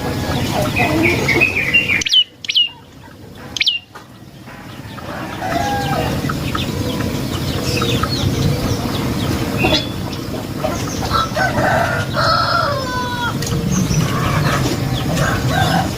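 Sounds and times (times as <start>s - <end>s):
bird calls: 0.0s - 15.9s
chickens clucking: 0.0s - 15.9s
high bird chirps: 0.7s - 11.4s.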